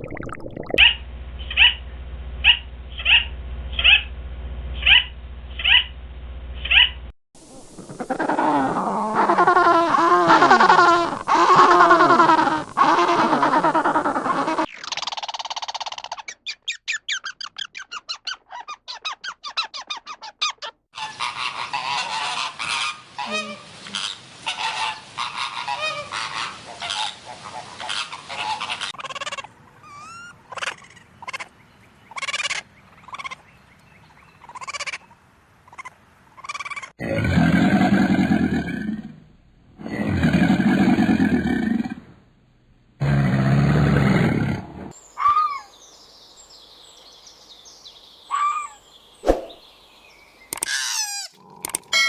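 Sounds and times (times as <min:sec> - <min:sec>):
loud bird calls: 0:00.8 - 0:04.1, 0:04.8 - 0:05.9, 0:43.0 - 0:46.1, 0:47.3 - 0:52.0.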